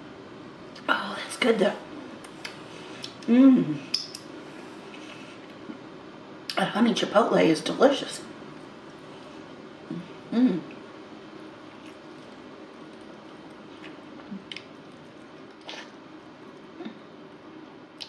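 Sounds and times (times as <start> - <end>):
chewing with wet mouth sounds: 11.6 - 16.7.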